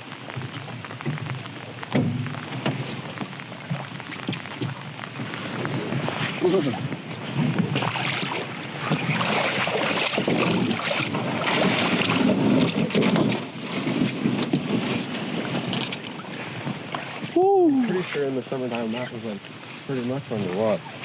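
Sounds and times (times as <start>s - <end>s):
wind buffeting microphone: 0.0s - 18.5s
rushing water: 0.0s - 21.0s
knocks and thumps: 0.3s - 4.8s.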